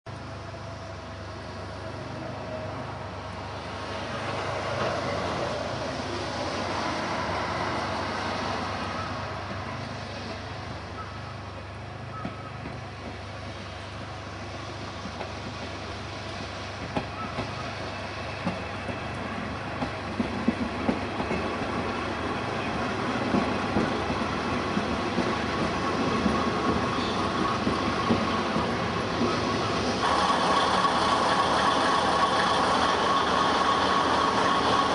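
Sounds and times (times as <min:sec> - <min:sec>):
diesel engine humming: 0:29.6 - 0:34.9.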